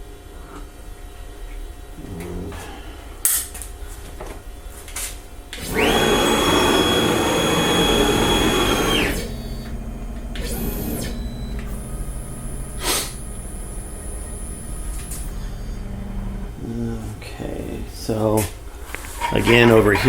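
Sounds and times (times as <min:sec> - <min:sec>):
power tool motor whining: 0:05.6 - 0:16.5, 0:18.8 - 0:20.0.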